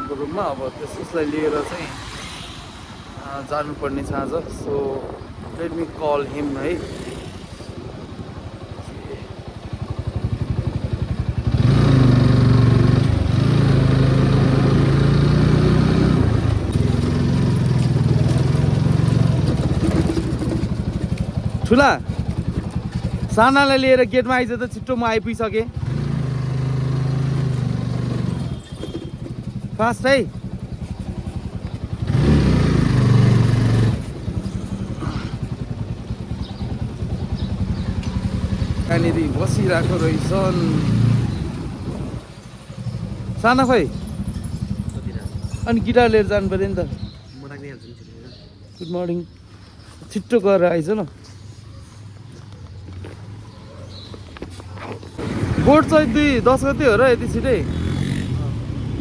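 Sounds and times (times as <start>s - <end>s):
motorcycle engine running: 0.0s - 47.4s, 52.1s - 59.0s.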